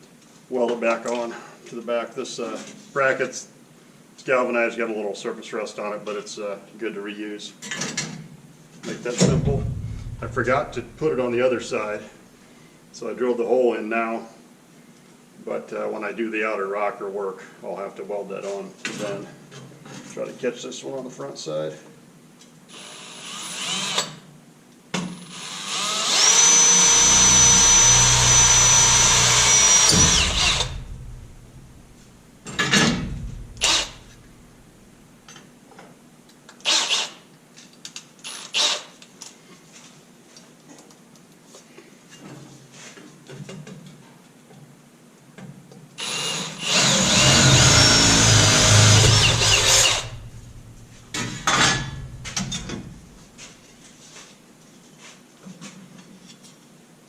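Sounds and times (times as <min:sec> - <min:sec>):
power drill into sheet metal: 0:22.7 - 0:24.2, 0:25.2 - 0:31.0, 0:33.4 - 0:34.2, 0:36.6 - 0:37.2, 0:38.2 - 0:39.0, 0:46.0 - 0:52.6.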